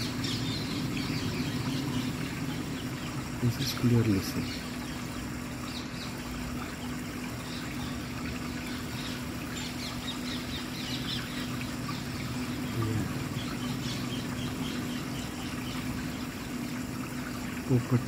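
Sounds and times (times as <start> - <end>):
steady low hum: 0.0 - 18.0
parrots chirping: 7.5 - 16.4.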